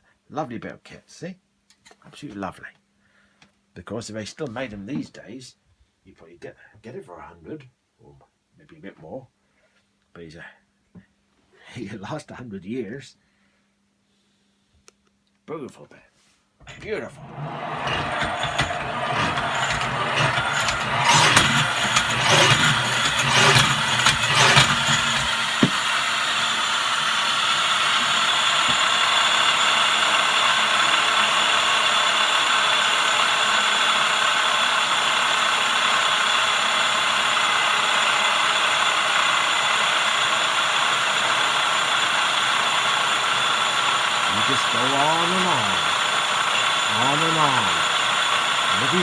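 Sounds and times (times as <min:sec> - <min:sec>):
treadle pushes with rattle: 0:16.6 - 0:28.8
grinding wheel whirring: 0:16.6 - 0:49.0.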